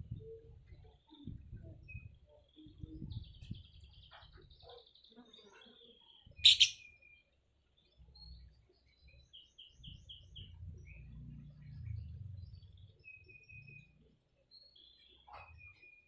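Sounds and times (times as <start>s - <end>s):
small birds chirping: 0.1s - 11.2s.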